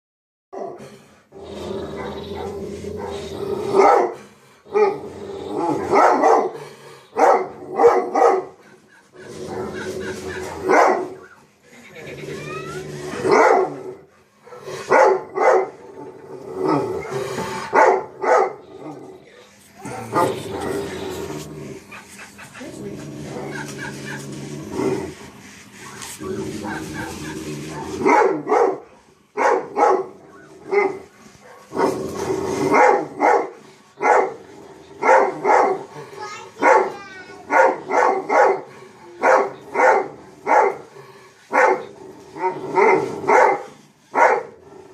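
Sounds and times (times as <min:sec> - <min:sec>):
dog barking: 0:03.8 - 0:04.2, 0:05.9 - 0:06.6, 0:07.2 - 0:08.6, 0:10.7 - 0:11.3, 0:13.3 - 0:13.8, 0:14.5 - 0:15.8, 0:17.7 - 0:18.6, 0:26.7 - 0:31.9, 0:32.7 - 0:34.4, 0:35.0 - 0:35.9, 0:36.6 - 0:40.9, 0:41.5 - 0:41.9, 0:42.8 - 0:44.6.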